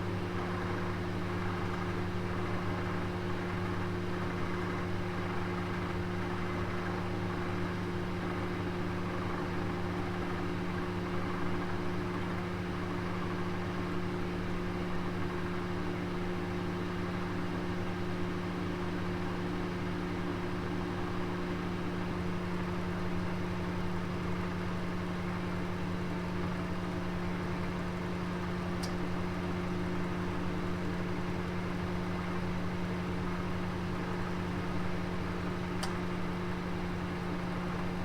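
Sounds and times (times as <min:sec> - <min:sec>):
oven humming: 0:23.7 - 0:38.0.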